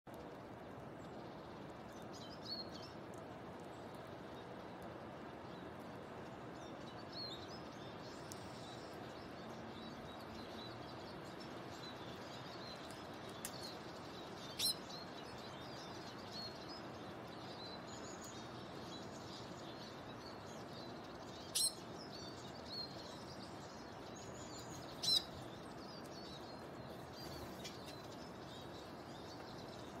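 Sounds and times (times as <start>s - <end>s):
steady outdoor hiss: 0.1s - 30.0s
bird chirps: 7.2s - 30.0s.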